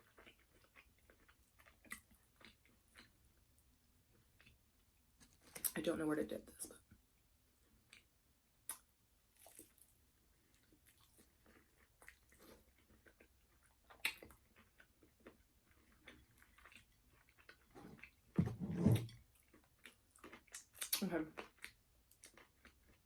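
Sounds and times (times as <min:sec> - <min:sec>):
chewing crispy fried chicken: 0:00.0 - 0:05.8, 0:07.6 - 0:18.4, 0:19.2 - 0:23.0
deep thud: 0:18.4 - 0:19.1.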